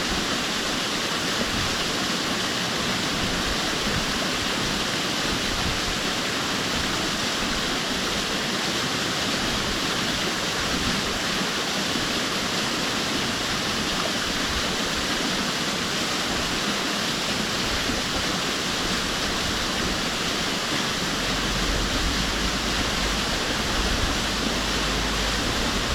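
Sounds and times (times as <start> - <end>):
waterfall rushing: 0.0 - 25.9
deep low rumble: 19.4 - 25.9.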